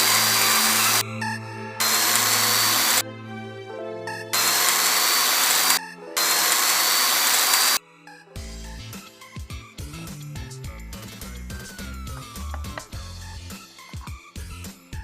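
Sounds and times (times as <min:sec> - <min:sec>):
electric power tool whining: 0:00.0 - 0:01.1, 0:01.8 - 0:03.0, 0:04.3 - 0:07.8
background music: 0:00.0 - 0:15.0.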